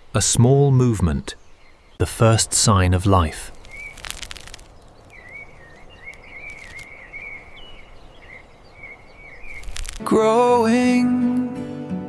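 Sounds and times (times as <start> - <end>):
steady hiss: 9.4 - 10.1.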